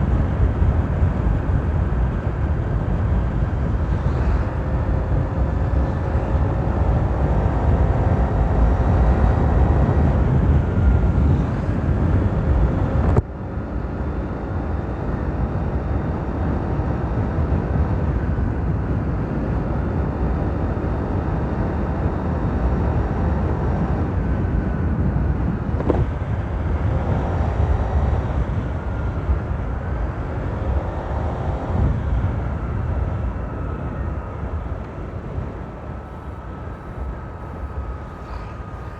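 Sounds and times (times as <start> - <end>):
fan whine sliding in pitch: 20.3 - 38.9
scooter engine rumbling: 25.3 - 38.9.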